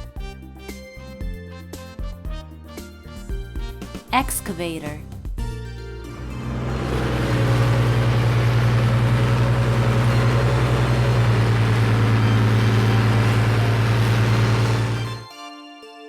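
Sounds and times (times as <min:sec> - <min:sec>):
excavator diesel engine droning: 0:06.0 - 0:15.2.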